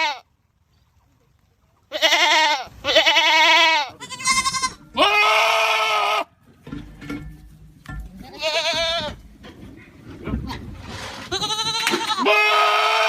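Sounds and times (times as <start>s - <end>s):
goats screaming: 1.9s - 6.3s, 11.2s - 13.0s.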